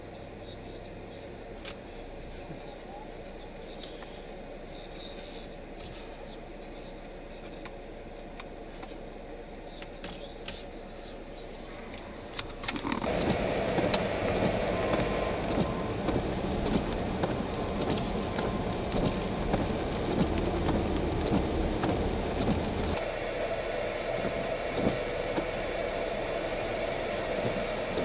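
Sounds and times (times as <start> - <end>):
low vehicle hum: 0.0 - 28.0
tyres on wet road: 11.7 - 28.0
rain: 13.0 - 28.0
raindrop ticks: 13.1 - 23.0.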